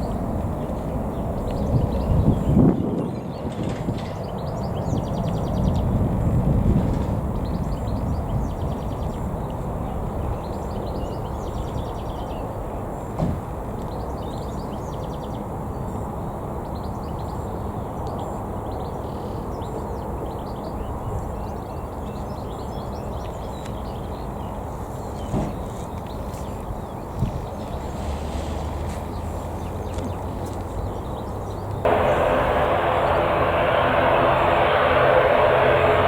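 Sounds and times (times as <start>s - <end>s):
jet airliner engines rumbling: 0.0s - 16.0s, 30.8s - 36.0s.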